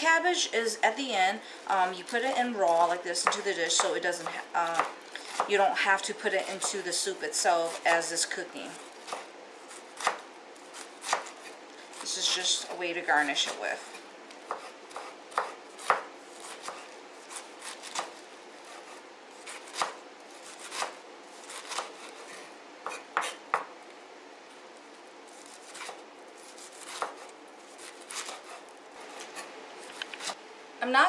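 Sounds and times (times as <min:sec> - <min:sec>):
knife chopping on cutting board: 0:13.4 - 0:22.2, 0:22.8 - 0:23.7, 0:25.6 - 0:30.4.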